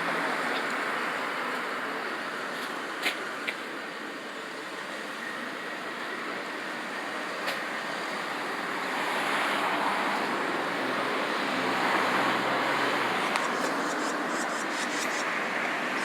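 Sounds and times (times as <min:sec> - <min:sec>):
passing vehicle: 0:07.9 - 0:16.0.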